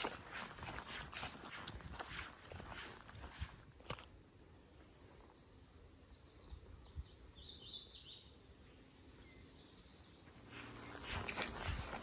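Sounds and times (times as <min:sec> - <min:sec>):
faint birdsong: 0:00.0 - 0:12.0.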